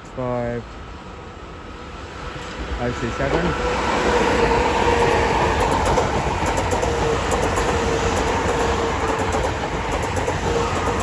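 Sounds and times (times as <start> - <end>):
train rumble and whine: 0.0 - 11.0
wheels clicking over rail joints: 5.0 - 11.0.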